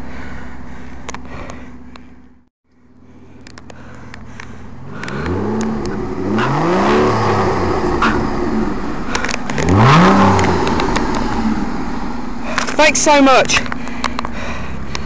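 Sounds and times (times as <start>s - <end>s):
car engine revving: 3.6s - 15.0s.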